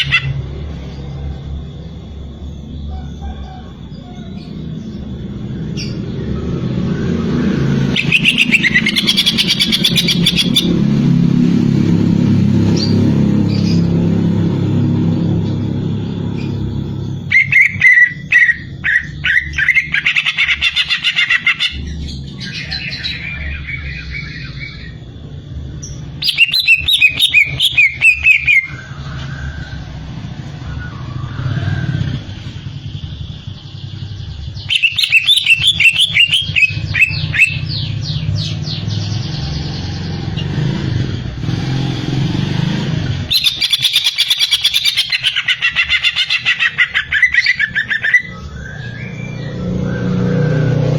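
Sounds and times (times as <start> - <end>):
bird chattering song: 0.0 - 1.2, 7.8 - 11.0, 15.4 - 29.2, 32.1 - 40.7, 43.2 - 50.2.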